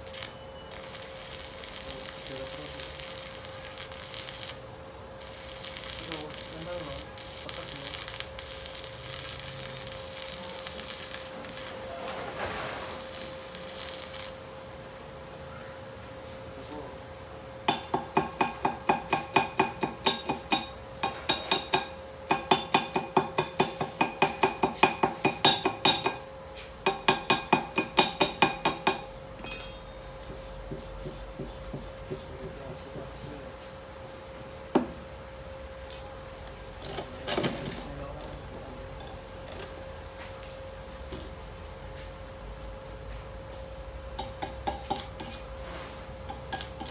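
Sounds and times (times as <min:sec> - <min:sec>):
hammer ringing on steel: 0:26.9 - 0:30.1.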